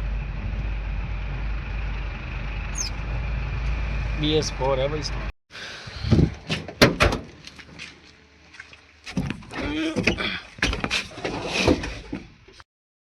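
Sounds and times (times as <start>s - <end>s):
sharp knocks and clunks: 6.1s - 7.4s.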